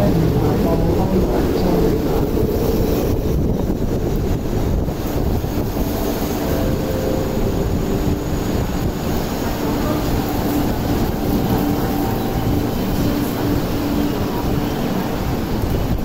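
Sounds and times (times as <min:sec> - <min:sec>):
electric train rumble: 0:00.0 - 0:16.0
heavy rain: 0:00.0 - 0:16.0
faint steady tones: 0:05.4 - 0:16.0.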